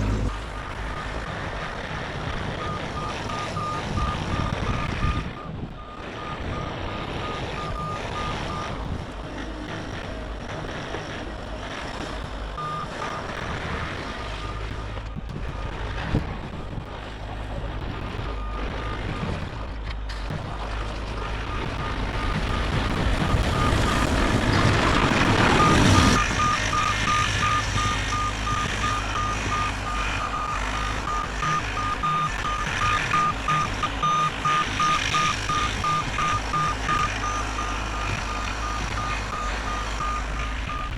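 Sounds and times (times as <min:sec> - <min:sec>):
excavator running: 0:00.0 - 0:40.9
travel alarm beeping: 0:02.6 - 0:08.7, 0:12.6 - 0:13.3, 0:21.5 - 0:40.9.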